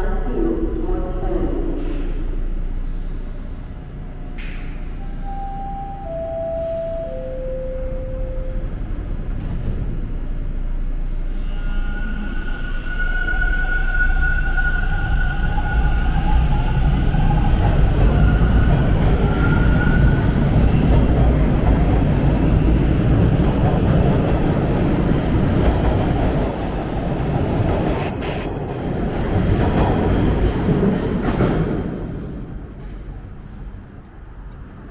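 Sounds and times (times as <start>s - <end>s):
subway train rumble: 0.0s - 34.9s
steel wheels squealing: 11.3s - 17.3s.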